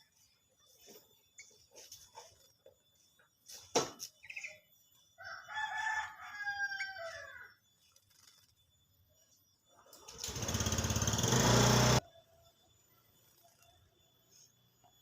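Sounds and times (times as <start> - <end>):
rooster crowing: 5.2 - 7.6.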